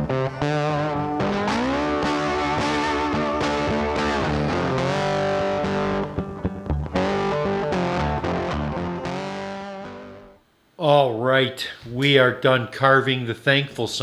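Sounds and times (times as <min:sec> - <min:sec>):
distorted electric guitar music: 0:00.0 - 0:10.4.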